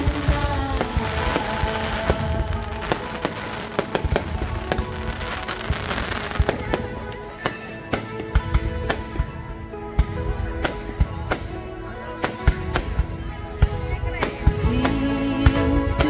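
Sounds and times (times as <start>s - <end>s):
fireworks bangs and crackles: 0.0s - 16.0s
music playing: 0.0s - 16.0s.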